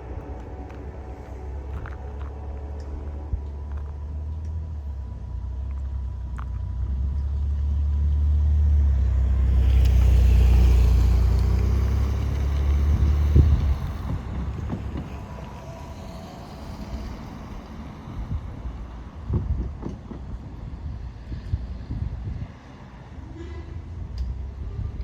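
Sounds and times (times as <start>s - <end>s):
vehicle passing by: 7.4s - 19.2s.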